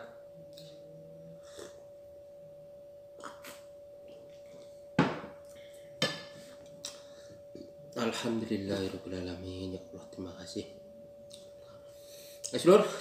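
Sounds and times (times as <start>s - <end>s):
steady high-pitched hum: 0.0s - 13.0s
tea glass knocking on table: 5.0s - 5.3s.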